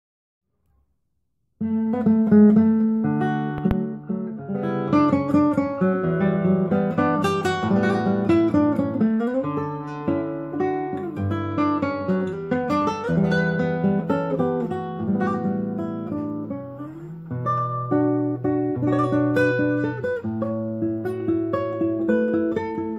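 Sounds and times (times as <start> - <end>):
classical guitar playing: 1.6 - 22.9.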